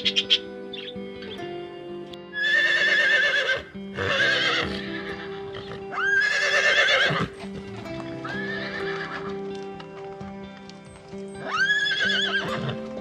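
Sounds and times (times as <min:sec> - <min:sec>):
wavering animal calls: 0:00.0 - 0:01.6, 0:02.3 - 0:09.5, 0:11.3 - 0:12.9
background music sustained notes: 0:00.0 - 0:13.0.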